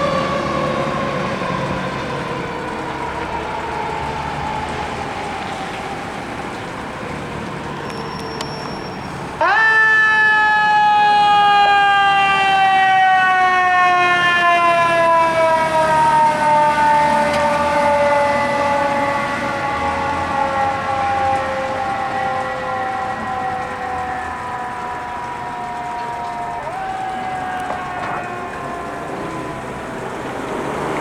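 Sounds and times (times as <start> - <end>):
fire engine running: 0.0 - 31.0.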